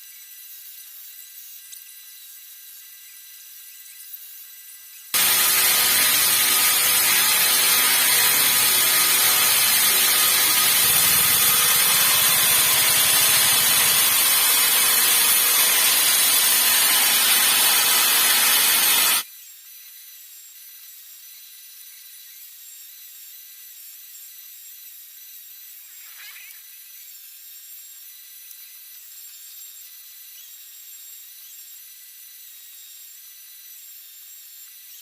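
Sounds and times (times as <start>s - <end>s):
power tool grinding: 5.2s - 19.2s.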